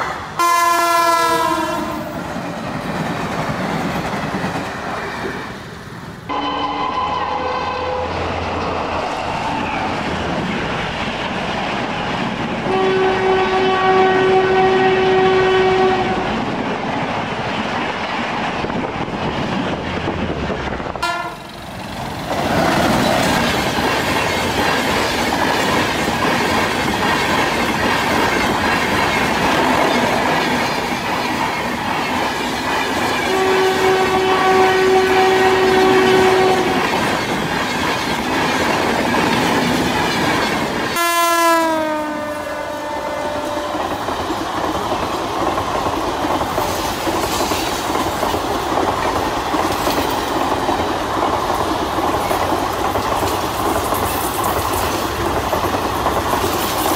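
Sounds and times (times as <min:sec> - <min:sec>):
train coaches running over track: 0:00.0 - 0:56.9
locomotive horn: 0:00.4 - 0:02.2, 0:06.3 - 0:08.4, 0:12.7 - 0:16.4, 0:21.0 - 0:21.6, 0:33.3 - 0:36.9, 0:41.0 - 0:43.9.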